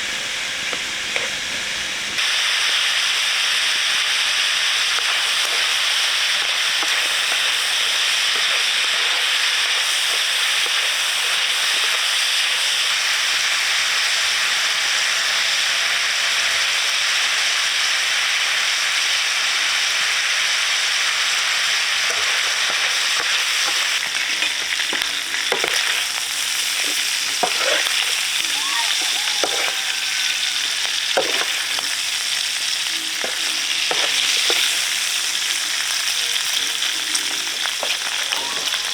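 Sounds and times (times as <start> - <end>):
food sizzling in a pan: 0.0 - 38.9
utensil stirring in a pan: 4.5 - 12.9, 20.9 - 38.9.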